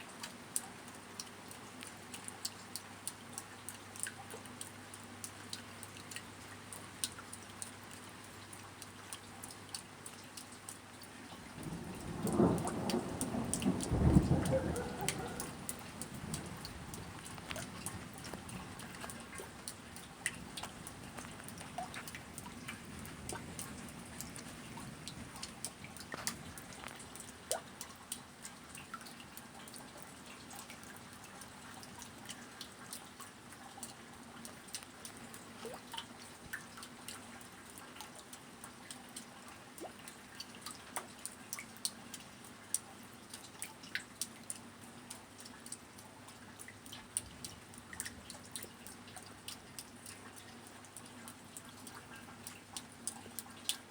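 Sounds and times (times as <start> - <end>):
faint rain hiss: 0.0 - 53.9
raindrops dripping and ticking: 0.0 - 53.9
low thunder rumble: 11.6 - 19.0.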